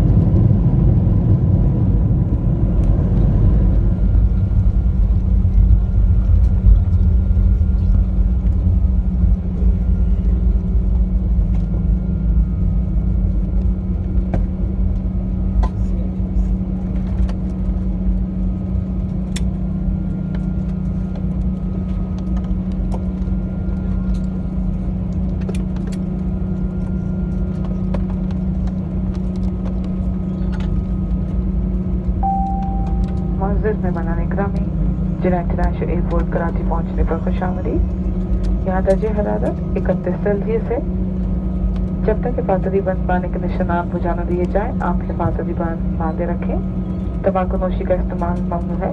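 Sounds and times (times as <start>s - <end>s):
aircraft cabin rumble: 0.0s - 48.9s
engine hum: 0.0s - 48.9s
short steady tone: 32.2s - 33.6s.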